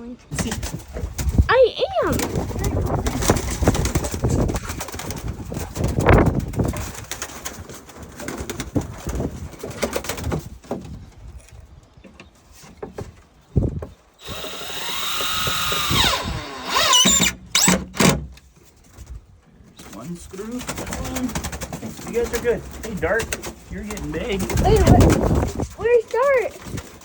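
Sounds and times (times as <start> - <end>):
power drill driving a screw: 14.2 - 18.0.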